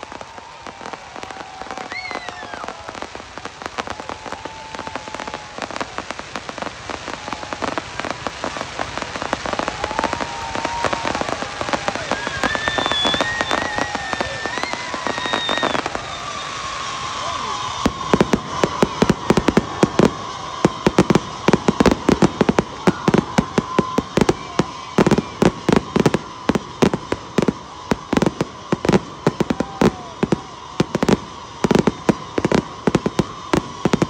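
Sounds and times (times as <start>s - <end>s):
fireworks crackling: 0.0s - 34.0s.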